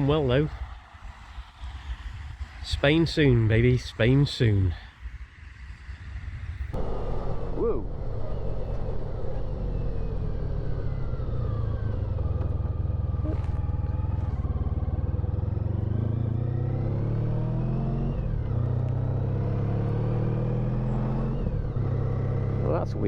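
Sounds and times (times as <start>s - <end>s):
wind and road noise: 0.0s - 23.0s
motorcycle engine: 6.8s - 23.0s.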